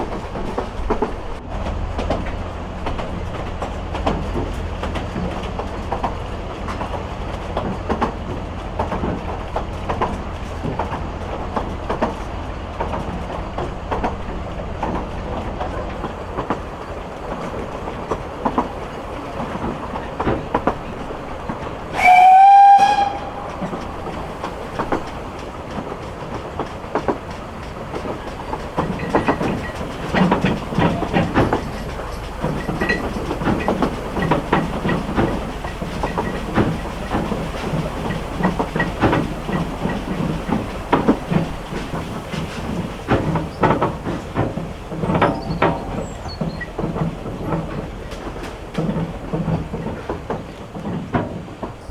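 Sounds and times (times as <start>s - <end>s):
clicking from the track: 0.0s - 51.9s
steam train rumbling: 0.0s - 51.9s
steam locomotive whistle blast: 21.9s - 24.5s.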